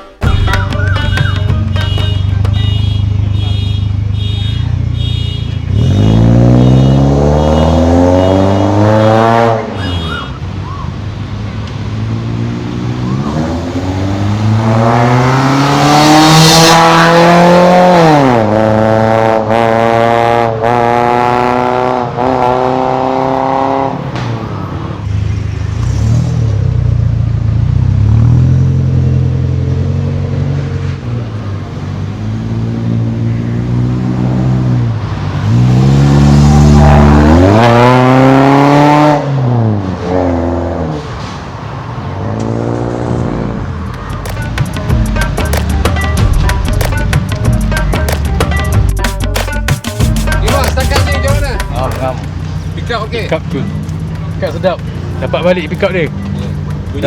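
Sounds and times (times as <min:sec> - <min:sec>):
car engine revving: 0:01.2 - 0:10.1, 0:11.2 - 0:41.1.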